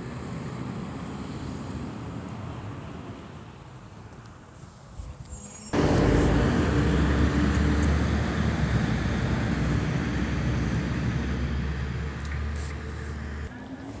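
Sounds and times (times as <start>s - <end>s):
garbage truck engine running: 5.8s - 13.5s.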